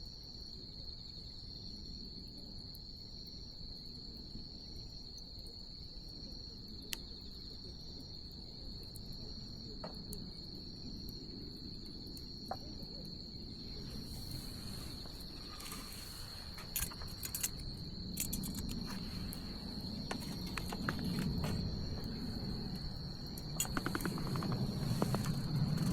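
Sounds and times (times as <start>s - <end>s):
high-pitched insect trill: 0.0s - 25.9s
bonfire rumbling: 13.3s - 25.9s
fire crackling and popping: 13.3s - 25.9s.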